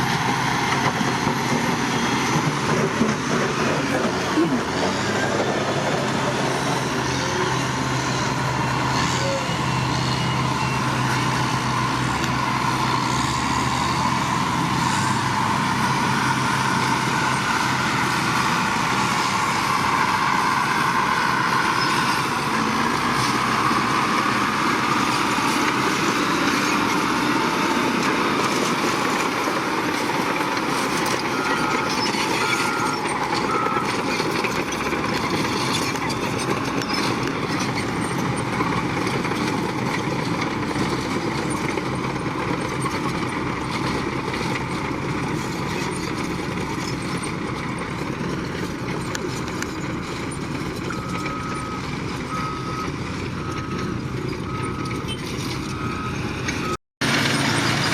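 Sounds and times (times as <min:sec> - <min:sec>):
heavy construction machinery running: 0:00.0 - 0:57.9
reversing alarm beeping: 0:31.2 - 0:34.1, 0:50.8 - 0:56.8.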